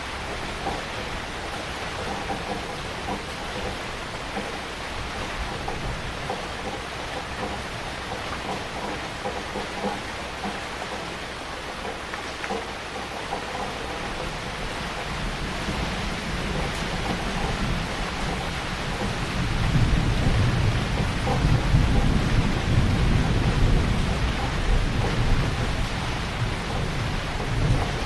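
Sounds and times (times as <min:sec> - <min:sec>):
heavy rain falling: 0:00.0 - 0:28.0
thunder rumbling: 0:13.7 - 0:28.0.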